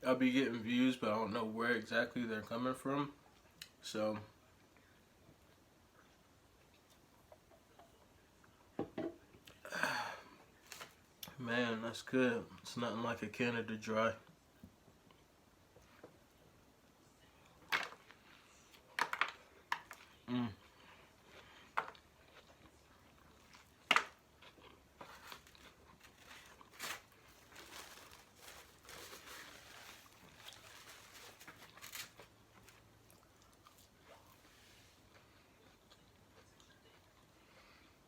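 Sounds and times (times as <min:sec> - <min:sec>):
wrappers crinkling: 0:10.6 - 0:11.0, 0:25.0 - 0:32.9
chewing: 0:18.1 - 0:26.7, 0:32.6 - 0:37.9.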